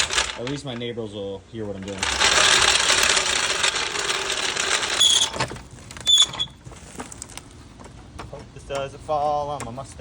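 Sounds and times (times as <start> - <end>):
metal scraping on concrete: 1.6 - 7.2.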